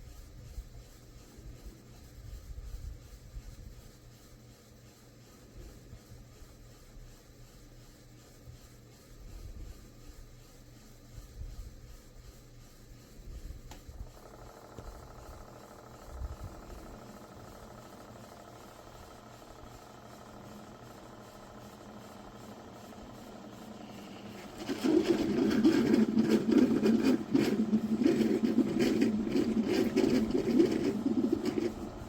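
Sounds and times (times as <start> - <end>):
coffee maker pump drone: 0.0 - 32.0
faint steady hum: 8.5 - 32.0
hot water sputtering and gurgling: 23.4 - 32.0.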